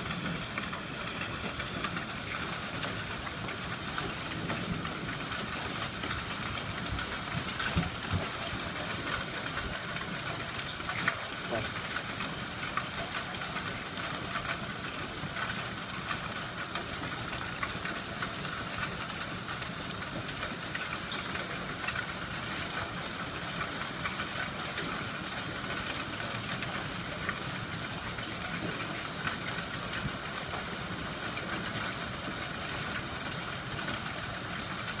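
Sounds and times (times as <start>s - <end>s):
heavy rain pouring: 0.0s - 35.0s
raindrops ticking: 0.0s - 35.0s.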